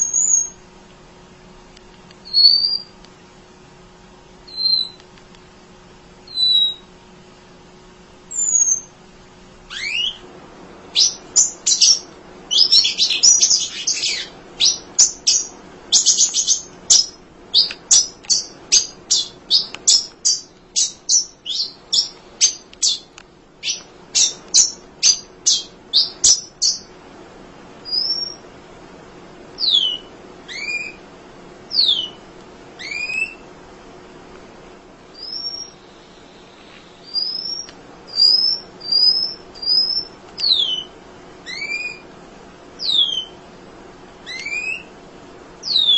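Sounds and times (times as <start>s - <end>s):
small bird chirping: 0.0s - 0.6s, 2.2s - 2.9s, 4.4s - 5.0s, 6.3s - 6.9s, 8.3s - 8.9s, 9.7s - 10.2s, 10.9s - 26.9s, 27.8s - 28.4s, 29.6s - 31.0s, 31.7s - 32.2s, 32.8s - 33.4s, 35.1s - 42.0s, 42.8s - 43.4s, 44.2s - 44.9s, 45.6s - 45.9s.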